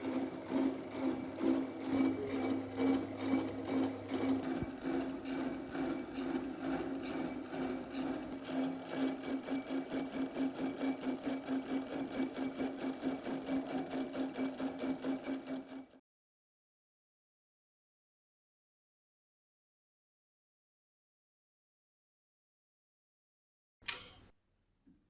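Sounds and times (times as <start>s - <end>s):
key cutting machine whirring: 0.0s - 15.7s.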